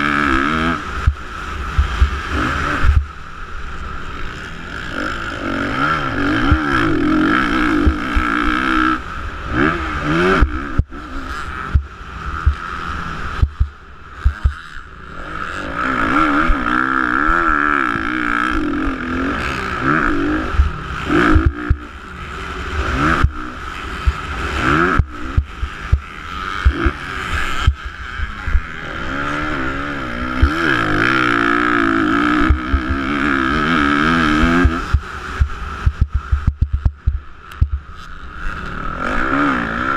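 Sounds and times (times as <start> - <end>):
dirt bike engines revving: 0.0 - 39.9
short low thumps: 34.6 - 37.8.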